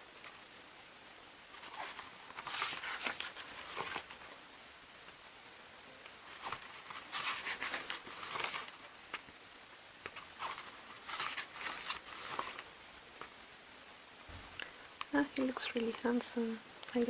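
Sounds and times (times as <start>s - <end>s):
photobook pages turning: 1.6s - 4.3s, 6.2s - 9.3s, 10.0s - 13.3s.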